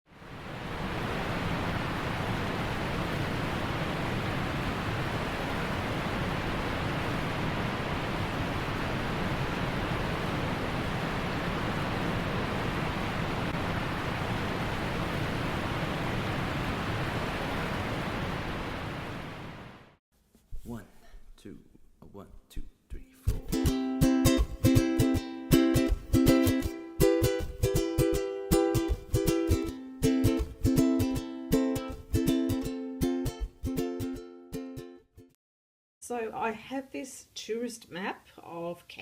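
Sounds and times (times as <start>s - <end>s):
steady rushing noise: 0.1s - 20.0s.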